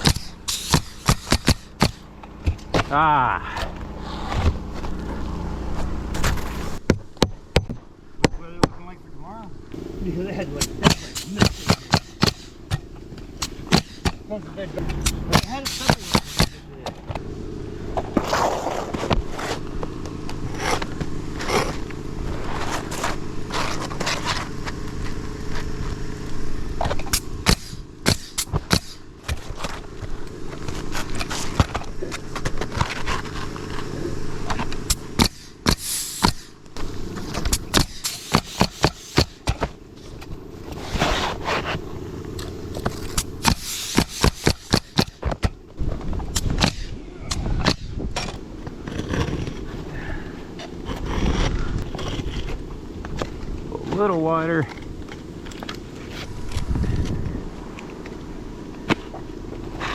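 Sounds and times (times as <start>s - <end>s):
scraping on roof shingles: 0.0s - 7.2s, 10.3s - 26.0s, 26.8s - 59.9s
low steady rumble: 0.0s - 59.9s.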